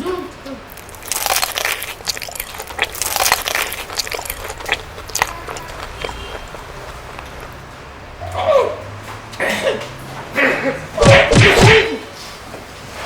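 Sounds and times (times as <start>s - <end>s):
crunchy food chewing: 0.7s - 7.8s.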